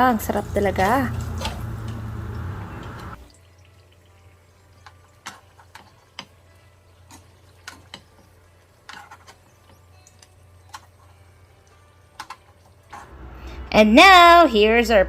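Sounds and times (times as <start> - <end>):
utensils clicking on a plate: 4.8 - 6.4, 7.1 - 11.1, 12.1 - 13.1.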